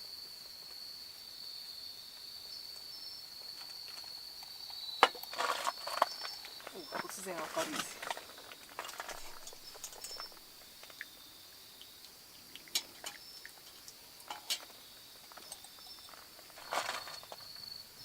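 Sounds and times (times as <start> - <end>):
insect trilling: 2.4 - 18.0
utensils clinking against dishes: 8.8 - 10.4, 14.3 - 14.7.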